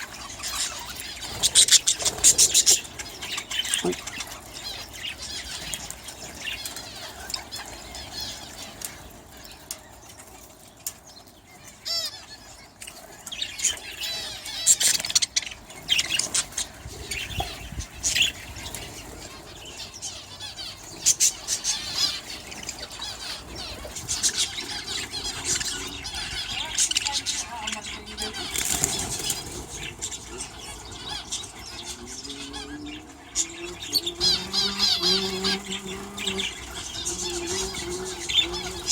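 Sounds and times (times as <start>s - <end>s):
wings fluttering: 0.0s - 11.0s, 20.9s - 38.9s
budgerigars chirping and chattering: 0.0s - 38.9s.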